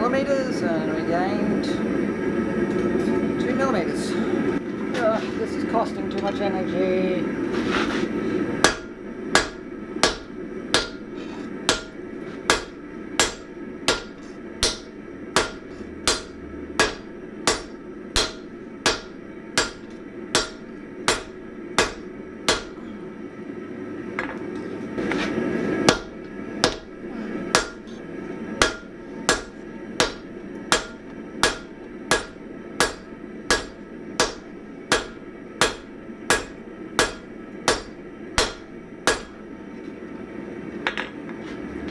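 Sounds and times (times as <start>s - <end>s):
hammer striking hot steel on anvil: 8.6s - 23.0s, 25.8s - 39.5s.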